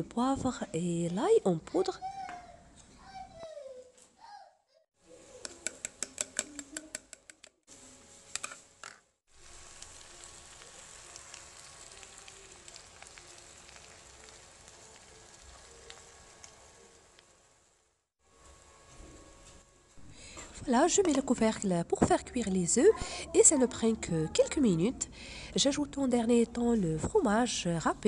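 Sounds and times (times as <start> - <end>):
fork beating eggs in bowl: 5.4 - 7.6
eggs sizzling in frying pan: 7.6 - 23.7.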